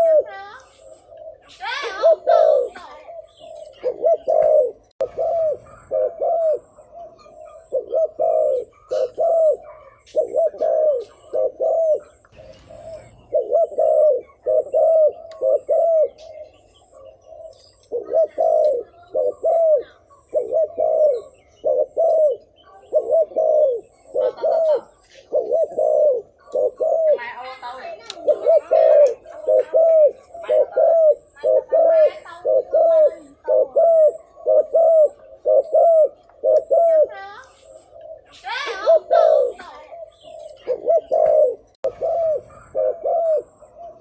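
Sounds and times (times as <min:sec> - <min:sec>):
dove cooing: 0:00.0 - 0:44.0.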